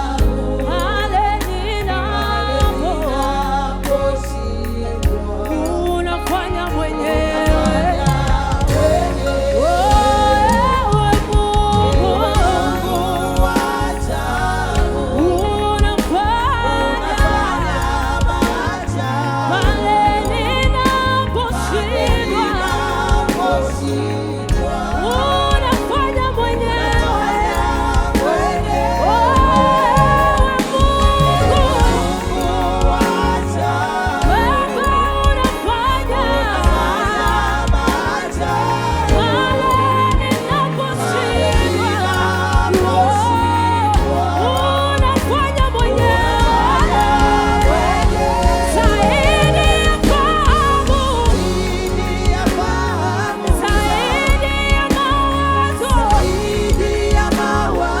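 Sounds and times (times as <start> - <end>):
band with deep bass line: 0.0 - 58.0
singers' gliding vocals: 0.0 - 58.0.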